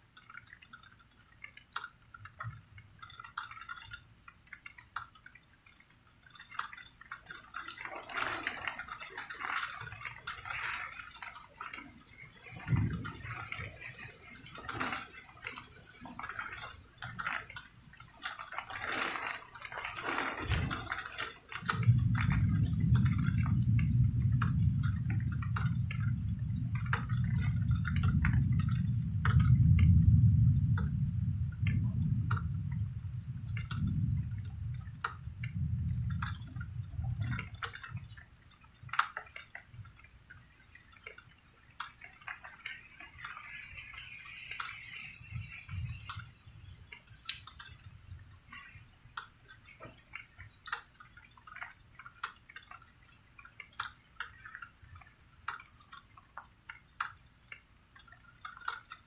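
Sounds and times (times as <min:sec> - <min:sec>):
raindrops dripping: 0:00.0 - 0:59.0
low rumble of thunder: 0:07.7 - 0:17.4, 0:18.6 - 0:39.0.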